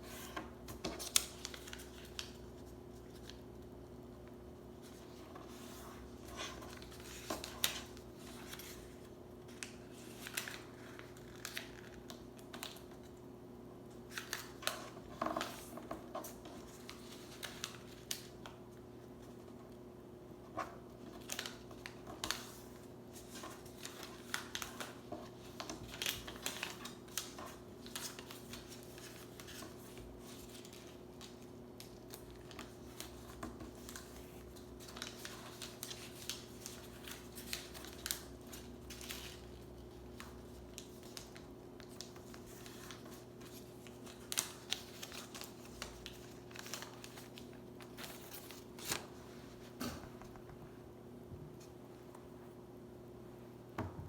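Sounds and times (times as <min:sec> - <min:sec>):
paper crinkling and scraping: 0:04.8 - 0:13.0, 0:14.1 - 0:18.5, 0:20.5 - 0:50.0.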